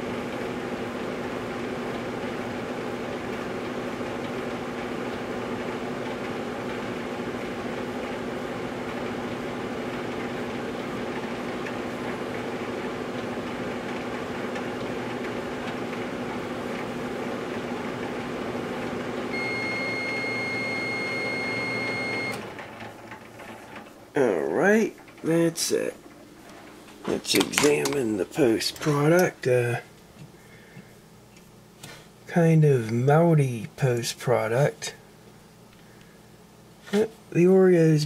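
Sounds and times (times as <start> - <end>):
microwave oven humming: 0.0 - 38.0
microwave long high beep: 19.3 - 22.4.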